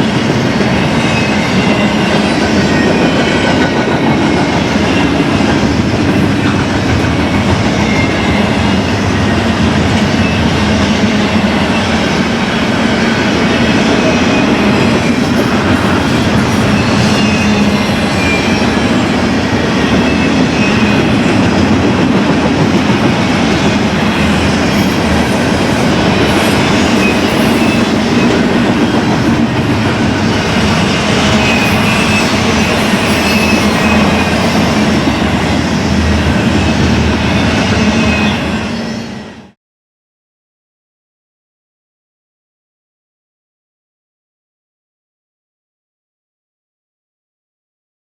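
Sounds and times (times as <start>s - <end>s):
freight train wheels clattering: 0.0s - 37.8s.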